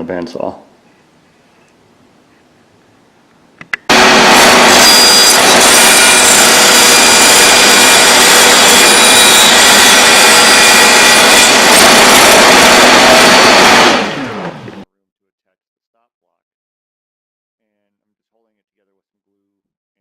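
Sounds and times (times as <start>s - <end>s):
bandsaw cutting wood: 3.9s - 14.8s.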